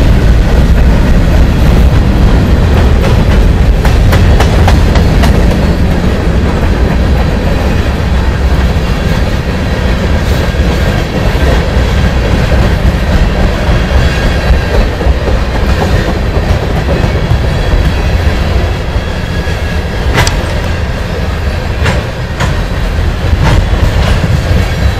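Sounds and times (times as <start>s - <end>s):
train wheels rumbling on rails: 0.0s - 24.9s
sharp clicks: 20.1s - 20.7s.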